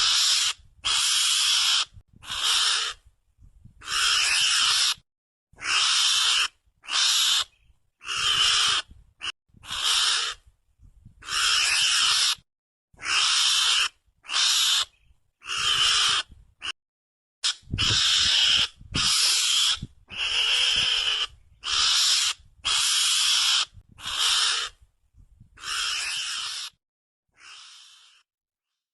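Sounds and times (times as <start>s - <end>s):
hissing rasping lure calls: 0.0s - 3.0s, 5.6s - 8.8s, 13.0s - 16.2s, 17.4s - 24.7s, 25.6s - 26.8s, 27.4s - 28.3s.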